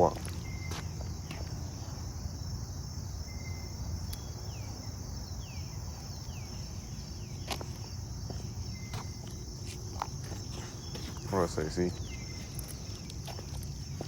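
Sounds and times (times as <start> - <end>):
insects chirring: 0.0 - 14.0
bird calling: 10.4 - 14.0.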